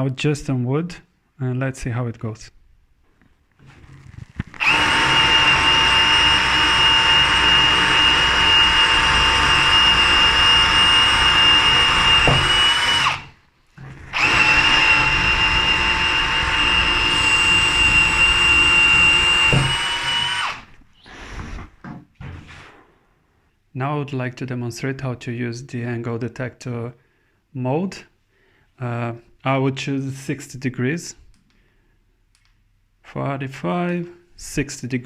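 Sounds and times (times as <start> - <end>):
cordless drill boring into wood: 4.5 - 21.6.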